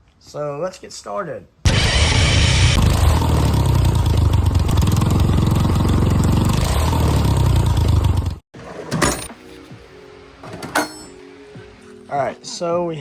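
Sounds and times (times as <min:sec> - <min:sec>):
small engine running loudly: 0:01.7 - 0:08.4.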